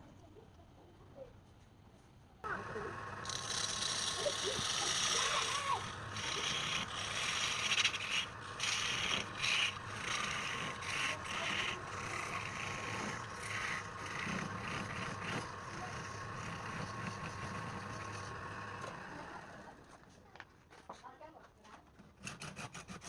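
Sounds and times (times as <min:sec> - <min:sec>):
tool scraping spinning wood: 0:02.4 - 0:20.0, 0:22.0 - 0:23.0
wood lathe humming: 0:02.5 - 0:19.9.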